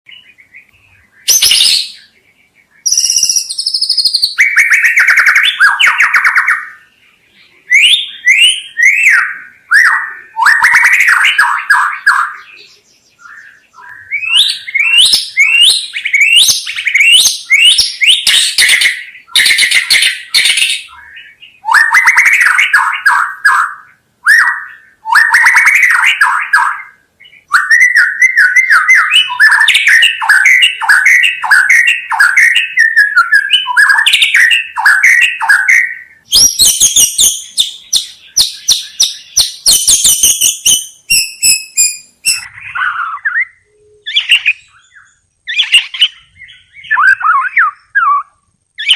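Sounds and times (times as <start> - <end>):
bird singing varied song: 0.1 - 48.9.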